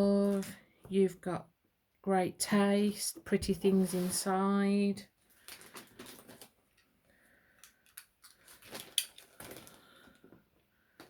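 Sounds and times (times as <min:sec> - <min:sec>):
cardboard parcel being opened: 0:05.2 - 0:06.8, 0:07.9 - 0:10.4.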